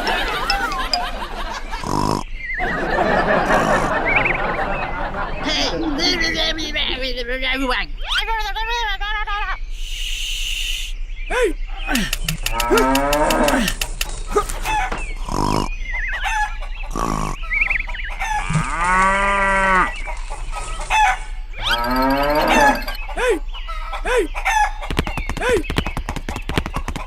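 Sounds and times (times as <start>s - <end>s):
clucking and chirping calls: 0.0s - 27.0s
sharp clicks: 11.9s - 15.2s
cow mooing: 12.5s - 13.7s, 18.4s - 19.9s, 21.6s - 23.0s.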